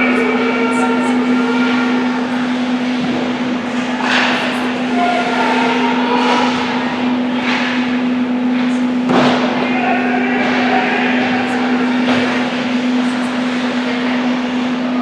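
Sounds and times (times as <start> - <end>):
distant shouts: 0.0 - 2.9, 4.0 - 7.3, 8.8 - 13.5
steady hum: 0.0 - 15.0.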